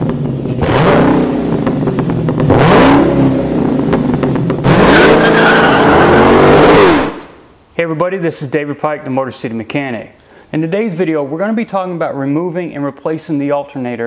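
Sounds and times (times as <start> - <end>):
car engine revving hard: 0.0 - 7.4.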